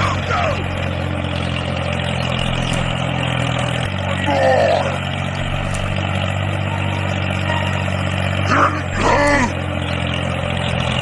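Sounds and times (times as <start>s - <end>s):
mini tractor engine humming: 0.0s - 11.0s.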